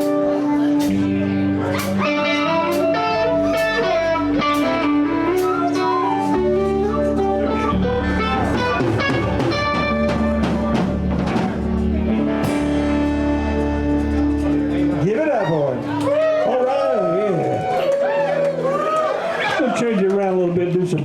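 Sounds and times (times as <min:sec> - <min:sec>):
electric guitar melody: 0:00.0 - 0:19.2
bass: 0:00.0 - 0:21.0
drum kit hits: 0:08.2 - 0:13.4.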